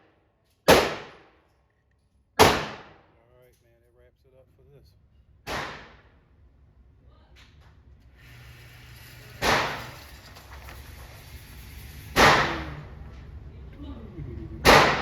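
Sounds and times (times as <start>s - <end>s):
gunshots with echo: 0.7s - 1.2s, 2.4s - 3.0s, 14.6s - 15.0s.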